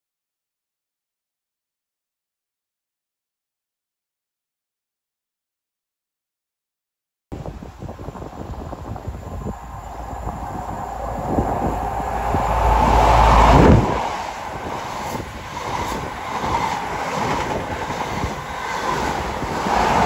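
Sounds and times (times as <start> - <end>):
train passing close by: 7.4 - 20.0.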